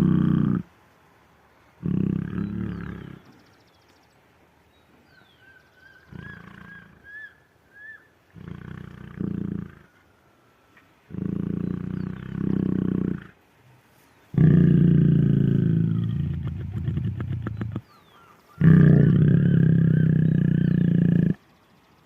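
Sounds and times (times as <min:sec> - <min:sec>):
lioness low calls: 0:00.0 - 0:00.7, 0:01.8 - 0:03.3, 0:05.8 - 0:10.0, 0:11.1 - 0:13.4, 0:14.3 - 0:21.4.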